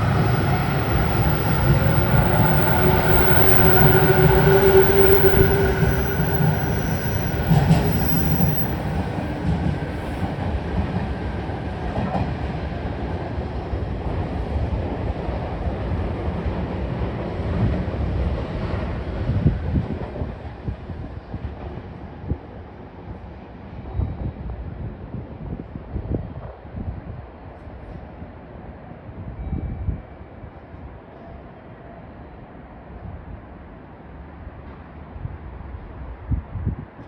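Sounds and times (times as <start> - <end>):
electric train motor whine: 0.0 - 9.4
train wheels clattering on rails: 0.0 - 11.1.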